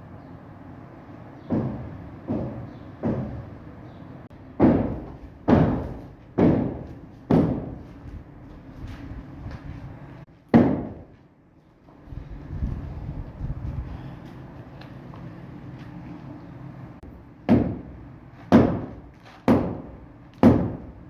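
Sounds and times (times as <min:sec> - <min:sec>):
heavy ringing knocks: 0:04.6 - 0:07.7.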